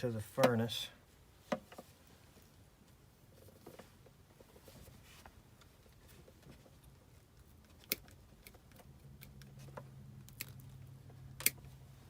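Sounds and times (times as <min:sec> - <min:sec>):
low steady hum: 0:00.0 - 0:12.0
clicks and snips of wiring work: 0:05.6 - 0:11.8.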